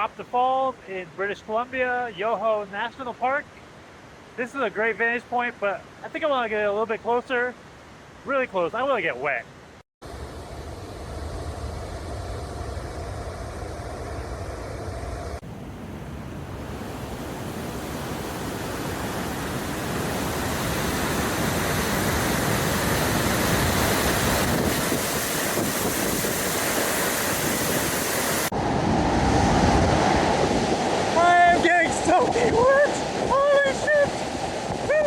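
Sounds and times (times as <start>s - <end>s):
large waterfall roaring: 15.5s - 35.0s.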